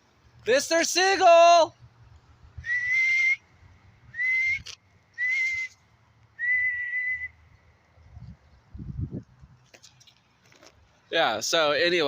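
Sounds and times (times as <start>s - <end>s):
person whistling high: 2.6s - 3.4s, 4.1s - 5.8s, 6.4s - 7.4s.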